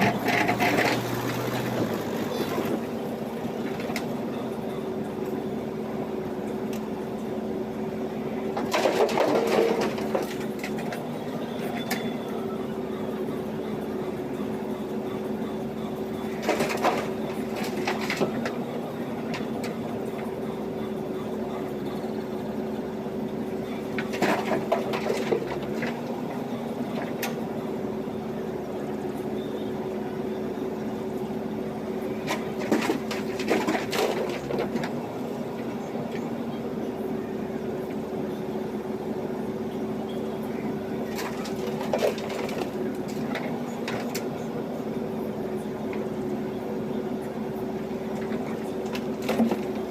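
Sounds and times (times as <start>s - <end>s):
bucket clanking and scraping gravel: 0.0s - 2.8s, 8.6s - 11.0s, 16.3s - 18.6s, 24.0s - 26.2s, 32.2s - 35.0s, 41.1s - 44.3s, 48.1s - 49.9s
diesel engine running: 0.0s - 49.9s.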